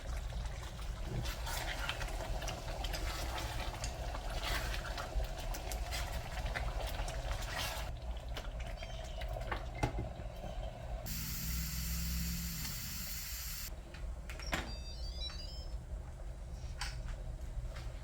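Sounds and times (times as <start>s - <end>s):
steady hiss: 11.1s - 13.7s.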